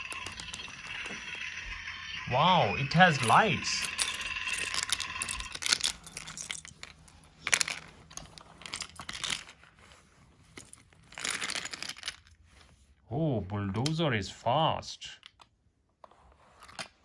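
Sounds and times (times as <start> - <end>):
steady high tone: 0.0 - 5.6
plastic toy rattling and scraping: 0.0 - 12.8, 16.0 - 17.0.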